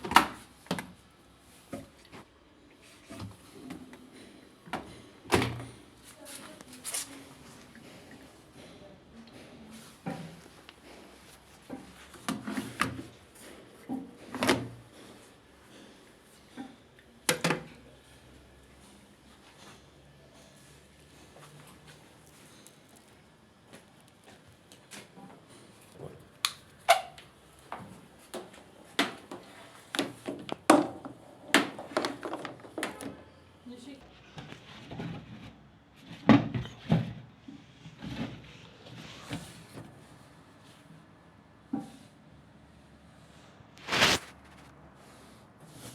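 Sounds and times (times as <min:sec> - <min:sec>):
hard objects knocking and clattering: 0:27.8 - 0:33.2.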